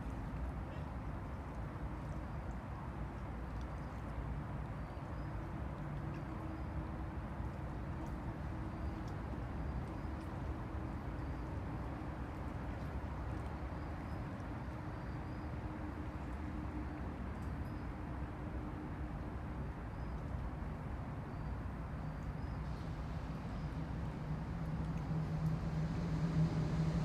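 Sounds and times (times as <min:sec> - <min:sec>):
water lapping against bank: 0:00.0 - 0:17.7
distant city traffic hum: 0:00.0 - 0:27.0.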